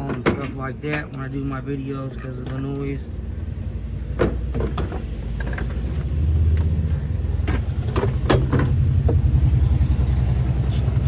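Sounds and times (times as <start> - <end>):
engine rumble: 0.0 - 11.0.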